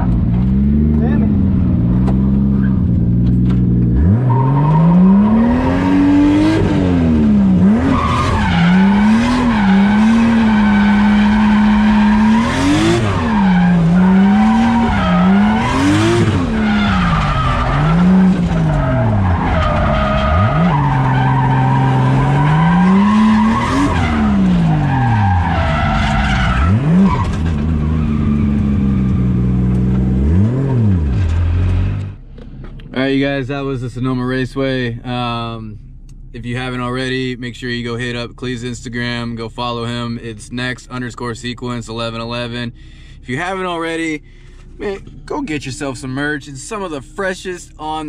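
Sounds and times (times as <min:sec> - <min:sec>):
car engine revving: 0:00.0 - 0:32.3.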